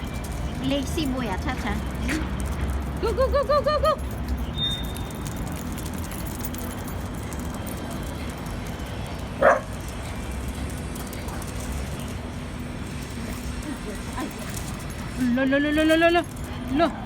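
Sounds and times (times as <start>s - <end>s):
dog barking: 9.4s - 9.7s.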